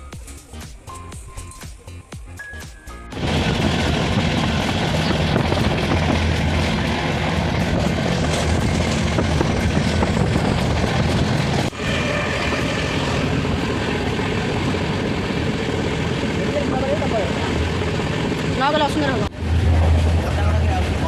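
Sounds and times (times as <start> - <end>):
train rumbling: 3.1 - 21.0.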